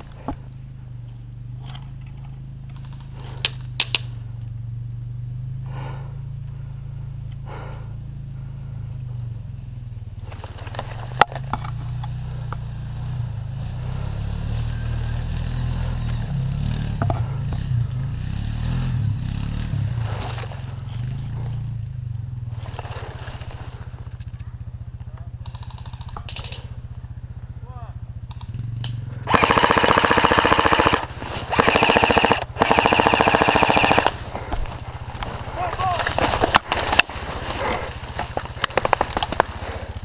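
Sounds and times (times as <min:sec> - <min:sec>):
steady low rumble: 0:00.0 - 0:14.2, 0:16.2 - 0:40.0
clothing and brush rustling: 0:34.1 - 0:38.7.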